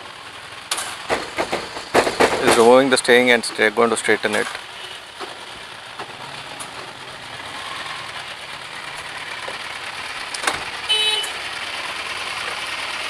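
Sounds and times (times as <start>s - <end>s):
vehicles: 0.0s - 13.0s
workshop activity: 0.7s - 9.7s.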